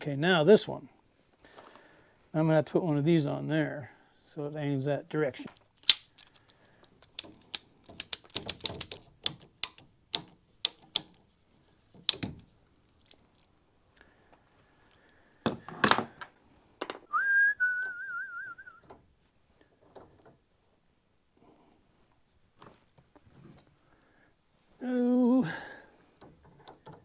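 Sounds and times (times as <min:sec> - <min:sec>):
clicks and knocks of fittings: 0:05.5 - 0:11.2, 0:11.9 - 0:13.2
person whistling: 0:17.1 - 0:18.8.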